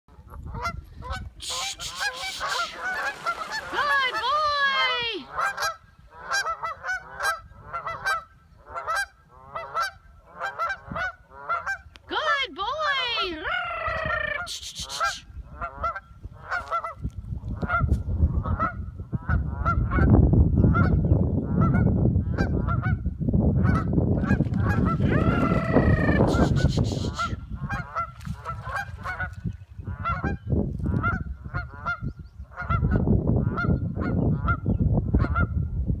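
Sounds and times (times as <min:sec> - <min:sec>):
geese honking: 0:01.1 - 0:10.8, 0:24.6 - 0:29.3.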